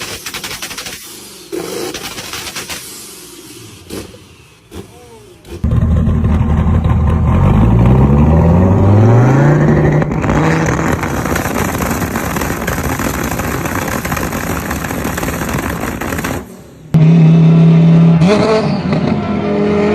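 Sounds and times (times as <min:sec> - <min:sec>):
car engine accelerating hard: 0:01.5 - 0:16.3, 0:16.9 - 0:19.9.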